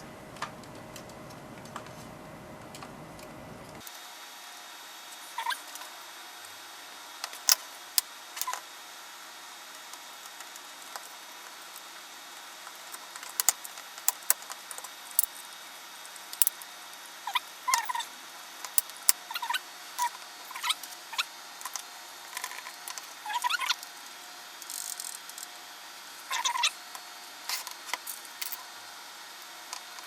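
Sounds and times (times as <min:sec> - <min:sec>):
plastic keys clicking and tapping: 0:13.4 - 0:14.4.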